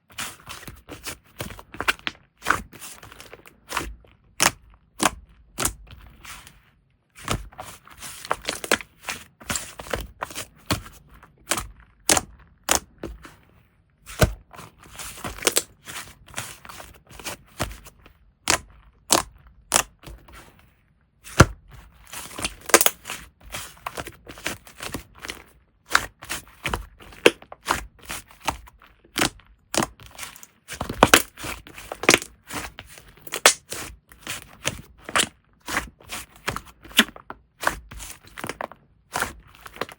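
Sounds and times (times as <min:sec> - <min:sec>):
slime popping and squishing: 0:22.4 - 0:23.1.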